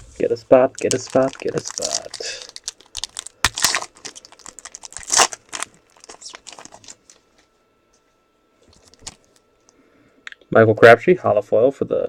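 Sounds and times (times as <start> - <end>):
foil wrapper crinkling and tearing: 0.7 - 7.2, 8.7 - 9.4.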